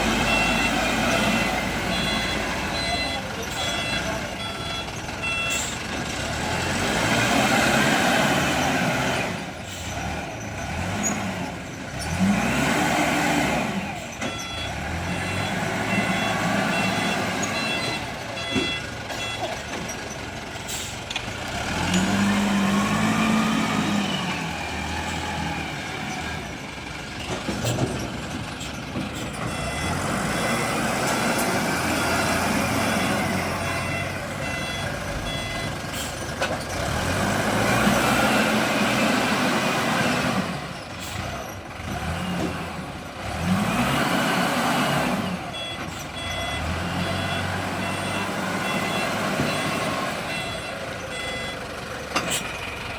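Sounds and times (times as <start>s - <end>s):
wheel loader diesel engine revving: 0.0s - 52.9s
reversing beeps: 0.1s - 5.8s, 14.1s - 20.2s, 27.6s - 36.2s, 45.3s - 51.6s.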